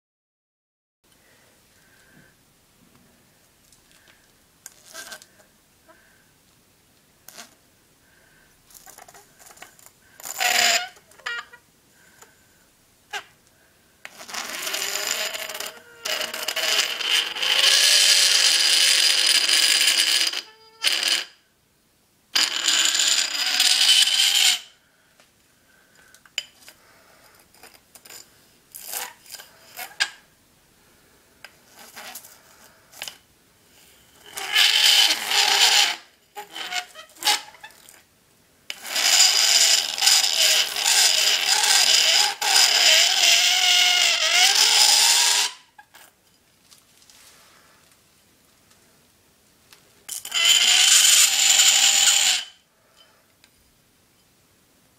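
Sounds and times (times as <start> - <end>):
metal rod squealing on dry ice: 4.7 - 5.3, 8.8 - 11.6, 14.0 - 21.4, 22.4 - 24.8, 27.5 - 30.2, 31.7 - 33.2, 33.8 - 38.0, 38.7 - 46.1, 50.1 - 53.1
small clicks and scrapes: 8.7 - 11.6.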